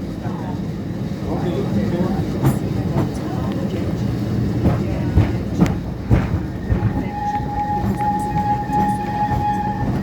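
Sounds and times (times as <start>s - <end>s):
tram rumbling on rails: 0.0s - 10.0s
high steady squeal: 6.5s - 10.0s.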